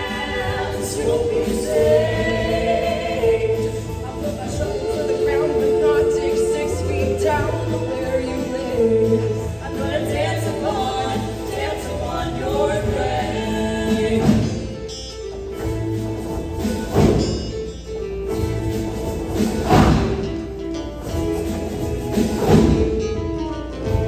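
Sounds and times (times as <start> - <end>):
choir singing with accompaniment: 0.0 - 17.7, 18.4 - 23.1
loud percussion hits: 15.6 - 17.8, 18.6 - 23.2.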